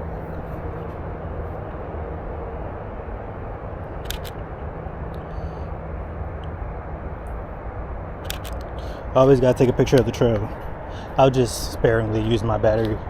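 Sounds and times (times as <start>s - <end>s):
steady low rumble: 0.0s - 13.0s
camera shutter clicking: 4.0s - 4.4s, 8.2s - 8.8s.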